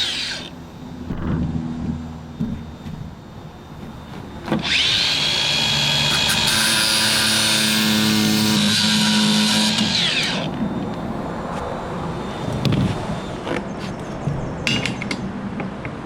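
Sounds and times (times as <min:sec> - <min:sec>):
power tool motor whining: 0:00.0 - 0:00.6, 0:04.4 - 0:11.0.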